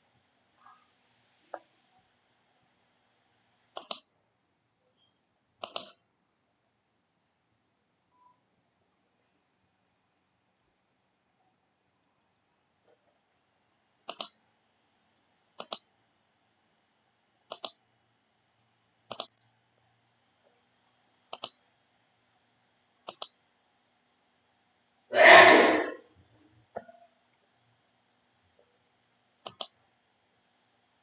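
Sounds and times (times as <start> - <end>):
computer mouse clicking: 3.8 - 4.1, 5.6 - 6.0, 14.1 - 14.4, 15.6 - 15.9, 17.5 - 17.8, 19.1 - 19.5, 21.3 - 21.6, 23.0 - 23.4, 29.4 - 29.8
short rush of noise: 25.1 - 26.0.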